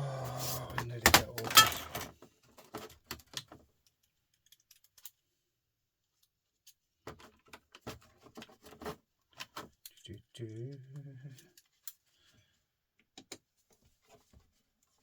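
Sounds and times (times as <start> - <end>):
small parts and tools clinking: 0.8 - 5.2.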